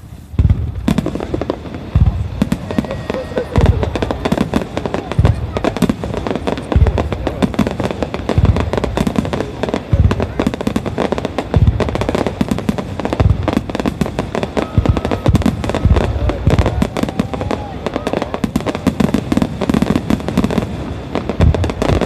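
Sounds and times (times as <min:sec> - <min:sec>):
fireworks popping and crackling: 0:00.0 - 0:22.0
heavy low booms: 0:00.3 - 0:02.8, 0:03.5 - 0:16.9.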